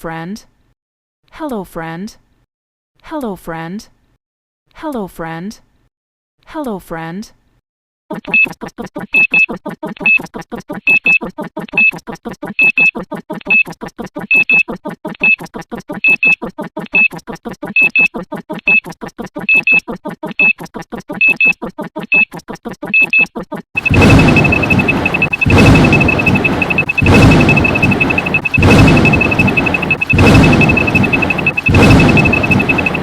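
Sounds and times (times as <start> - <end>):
high beeps: 17.8 - 18.1, 19.5 - 19.8, 23.0 - 33.0
harsh noise with high tone: 23.8 - 33.0
rapid electronic pulses: 23.8 - 33.0.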